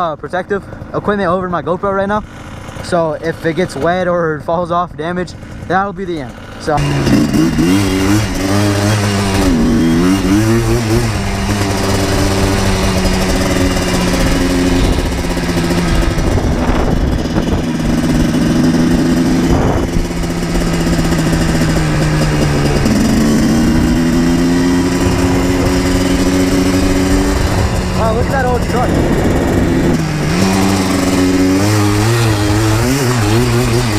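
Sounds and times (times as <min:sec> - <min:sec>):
two-stroke engine running: 0:00.0 - 0:33.9.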